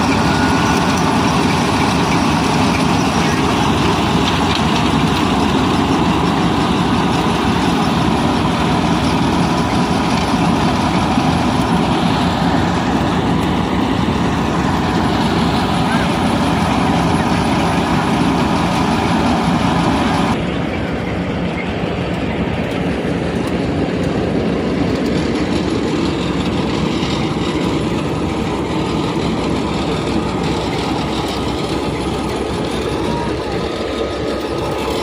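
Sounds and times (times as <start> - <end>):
thresher machine: 0.0 - 35.0
tractor diesel engine running: 0.0 - 35.0.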